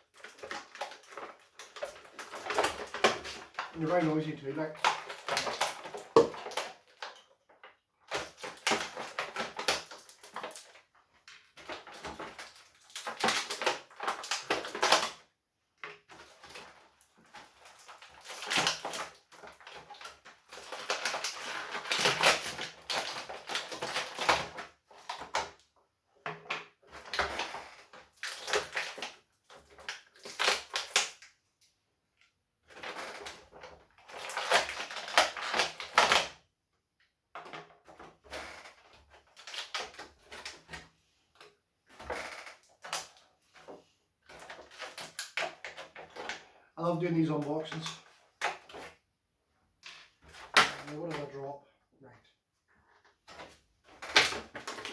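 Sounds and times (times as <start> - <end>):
plastic packaging crackling: 34.0 - 36.3, 53.3 - 54.9.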